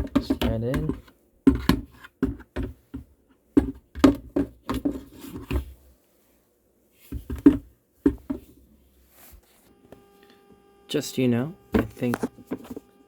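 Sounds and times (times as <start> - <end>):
plastic parts clicking and knocking: 0.0 - 5.6.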